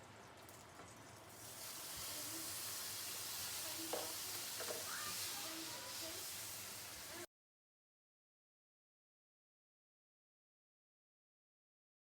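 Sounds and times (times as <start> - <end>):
food sizzling in hot oil: 1.0 - 7.3.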